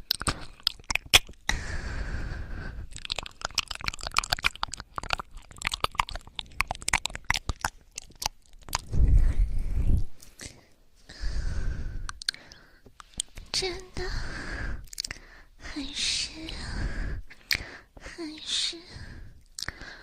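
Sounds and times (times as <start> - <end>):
crackling and clicking on microphone: 0.0 - 1.5, 2.8 - 10.6, 12.0 - 13.7
low rumble: 8.8 - 10.2.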